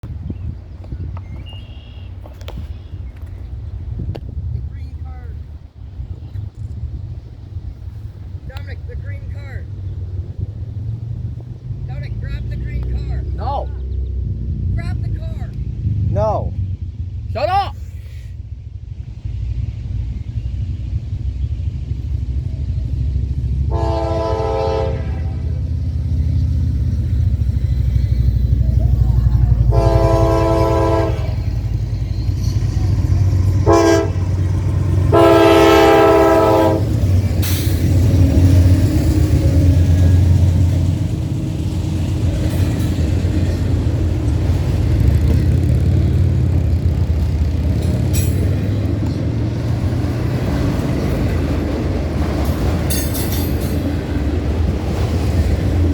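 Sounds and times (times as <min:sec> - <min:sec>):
diesel locomotives rumbling: 0:00.0 - 0:55.9
train air horn: 0:23.7 - 0:25.6, 0:29.6 - 0:31.6, 0:33.6 - 0:34.4, 0:35.1 - 0:37.0.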